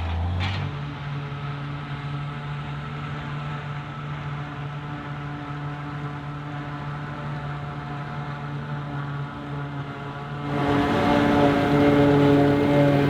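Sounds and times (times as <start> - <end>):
diesel engine running: 10.4 - 13.0.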